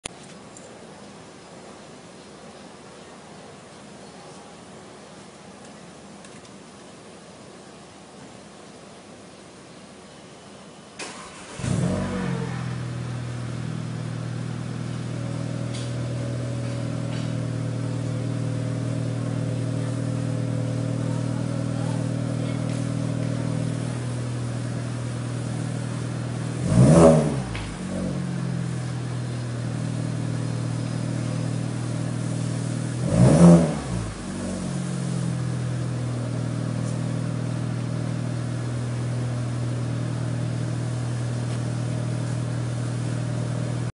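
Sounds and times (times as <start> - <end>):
car engine idling and revving: 11.1 - 43.9.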